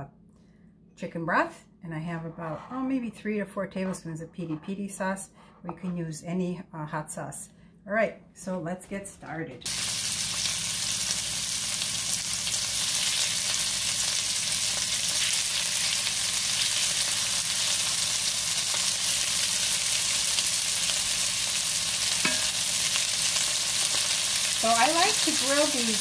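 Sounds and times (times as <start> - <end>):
chicken sizzling on grill pan: 9.7 - 26.0.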